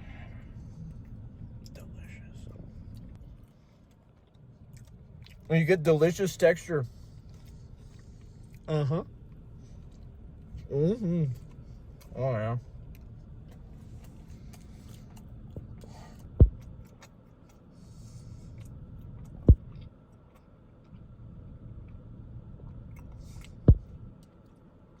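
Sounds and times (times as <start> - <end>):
chewing and mouth sounds: 0.3 - 5.6, 7.1 - 25.0
short dull thumps: 16.4 - 16.6.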